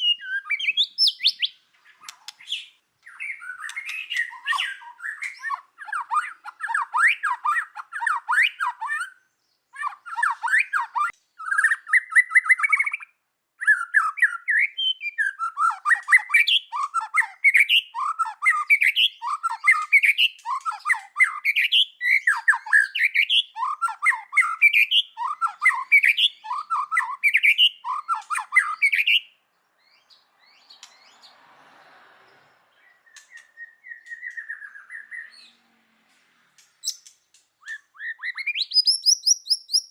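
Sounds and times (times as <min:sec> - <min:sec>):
bird singing varied phrases: 0:00.0 - 0:31.3, 0:32.4 - 0:35.6, 0:36.6 - 0:39.9
short bird whistle: 0:36.9 - 0:39.9.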